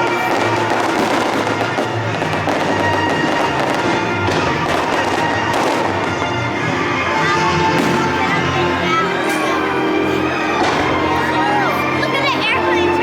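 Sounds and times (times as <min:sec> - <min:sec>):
fireworks crackling and banging: 0:00.0 - 0:13.0
loud music: 0:00.0 - 0:13.0.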